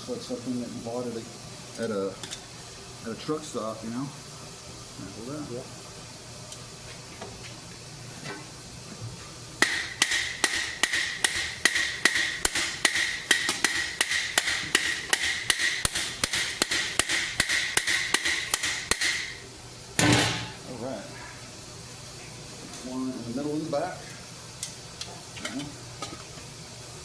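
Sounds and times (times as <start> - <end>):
hammer striking steel helmet: 9.6 - 19.4, 20.0 - 20.6.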